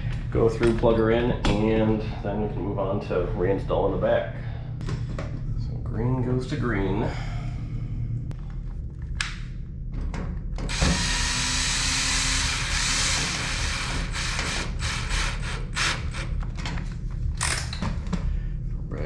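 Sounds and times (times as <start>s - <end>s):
cordless drill driving screw: 10.7s - 16.3s.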